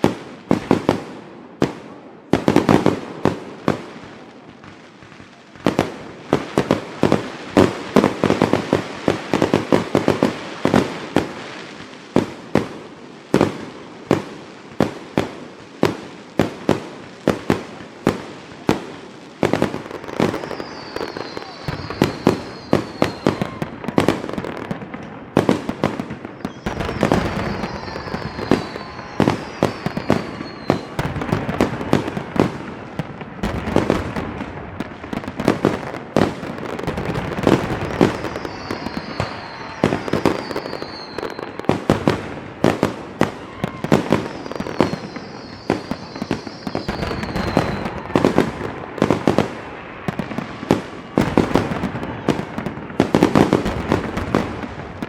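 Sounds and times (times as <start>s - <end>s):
fireworks bangs and crackles: 0.0s - 55.0s
falling firework whistles: 19.4s - 55.0s.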